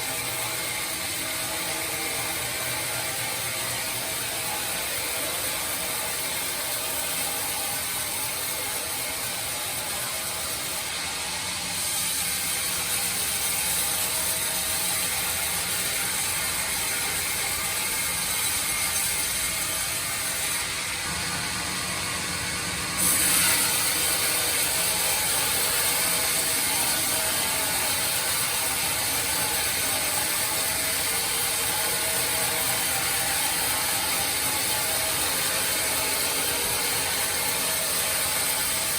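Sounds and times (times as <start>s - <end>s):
band saw cutting wood: 11.8s - 38.9s.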